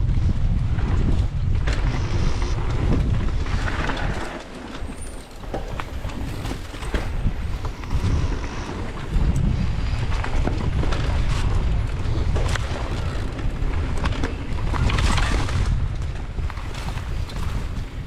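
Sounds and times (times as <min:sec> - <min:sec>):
bike rattling: 0:00.0 - 0:18.0
wind buffeting the microphone: 0:00.0 - 0:18.0
tyres on dirt: 0:01.6 - 0:15.8.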